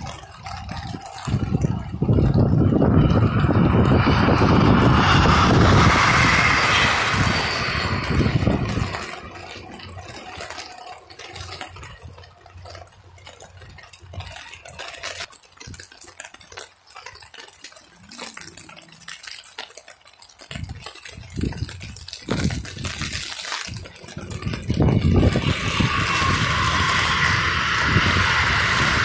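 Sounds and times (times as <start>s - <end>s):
electric train passing: 0.0s - 15.3s, 22.3s - 29.0s
wind noise on microphone: 0.0s - 15.8s, 20.4s - 29.0s
rain: 0.0s - 29.0s
short crackles: 0.0s - 29.0s.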